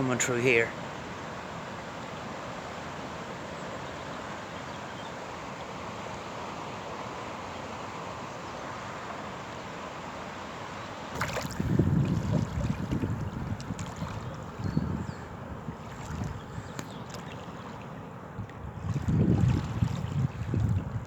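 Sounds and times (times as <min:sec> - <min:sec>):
river current rushing: 0:11.2 - 0:21.0
wind buffeting microphone: 0:11.2 - 0:21.0.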